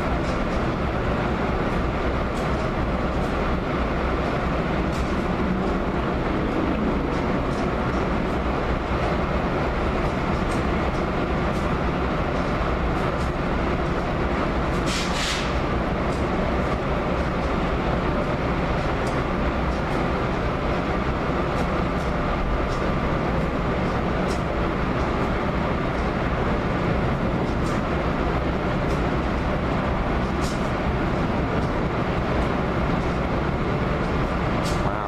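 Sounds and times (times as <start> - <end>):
train rumbling: 0.0 - 35.0
short hiss: 14.9 - 15.6.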